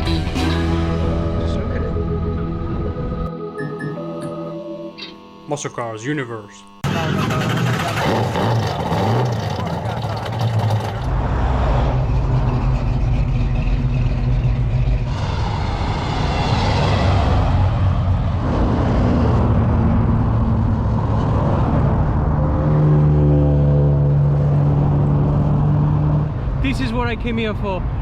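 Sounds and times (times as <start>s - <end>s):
car engines revving: 6.8s - 26.8s.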